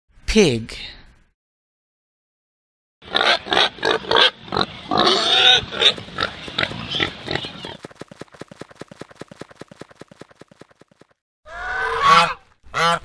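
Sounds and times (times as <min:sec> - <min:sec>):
pig grunting and oinking: 0:03.0 - 0:07.8.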